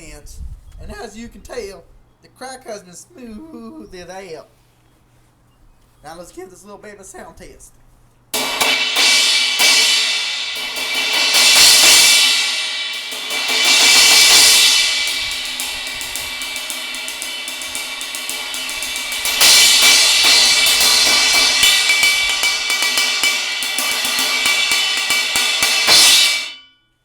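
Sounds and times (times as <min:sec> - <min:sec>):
crash cymbal struck with sticks: 0:08.4 - 0:26.7.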